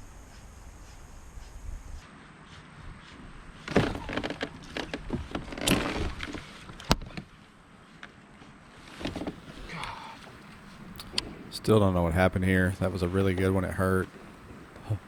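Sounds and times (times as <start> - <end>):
sharp knocks and clattering: 3.6 - 7.3
sharp crack: 9.0 - 11.7.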